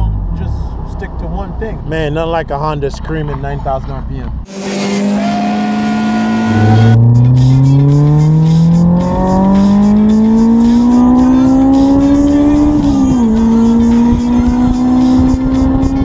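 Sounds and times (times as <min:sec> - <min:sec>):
car engine revving high: 0:04.5 - 0:16.0.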